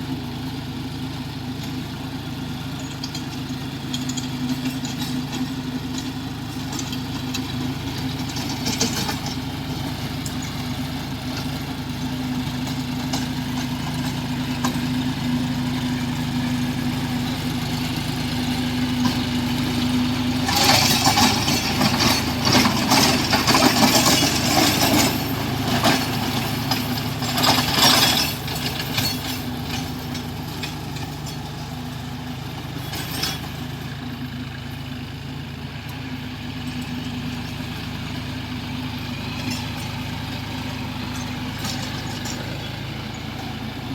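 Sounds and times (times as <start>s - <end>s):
tractor diesel engine running: 0.0s - 43.9s
clattering rattle: 2.8s - 10.7s, 20.4s - 31.7s, 32.7s - 34.0s, 39.2s - 43.9s.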